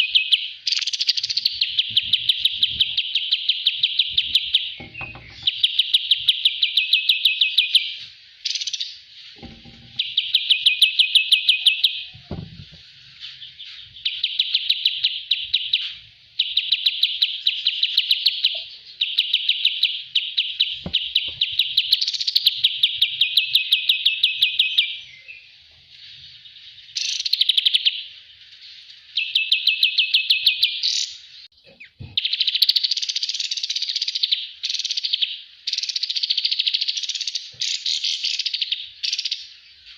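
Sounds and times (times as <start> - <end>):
faint low knocks: 4.1 - 5.6, 9.4 - 10.2, 12.2 - 12.9.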